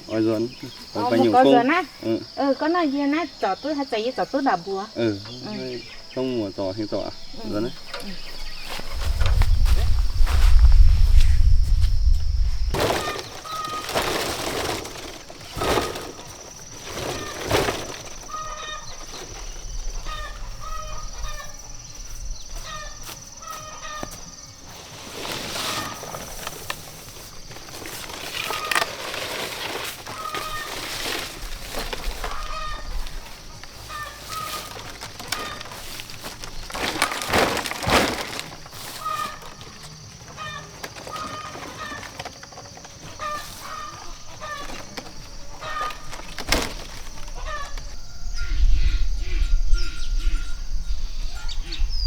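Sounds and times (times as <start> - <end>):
birds calling: 0.0 - 52.0
scuffing and rustling: 6.9 - 48.1.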